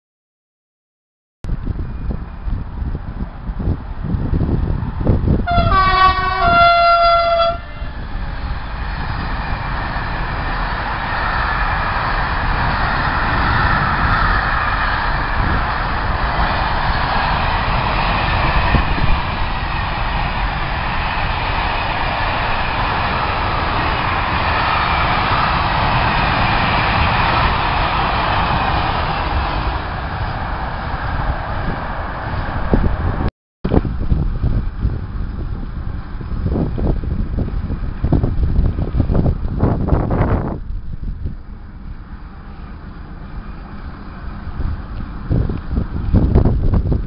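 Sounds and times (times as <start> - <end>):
train passing with rumble: 1.5 - 47.0
wheels rattling on rails: 1.5 - 47.0
train horn blast: 5.4 - 8.0.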